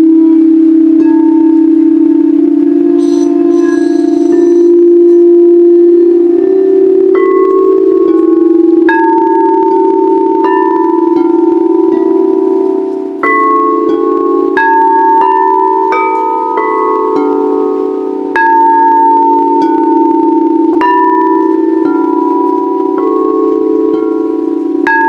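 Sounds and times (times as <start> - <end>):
singing bowls ringing: 0.0 - 25.0.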